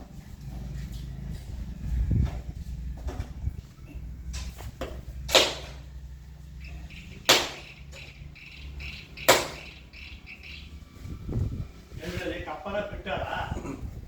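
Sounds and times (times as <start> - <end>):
sharp bangs: 5.2 - 5.9, 6.6 - 10.8.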